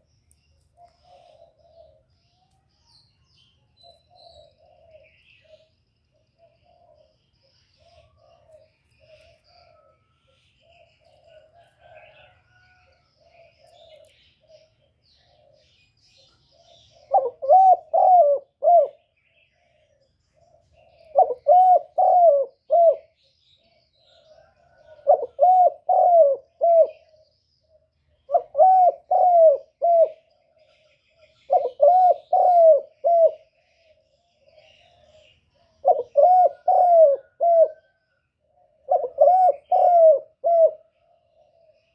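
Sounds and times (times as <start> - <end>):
bird cooing: 0.7 - 41.9.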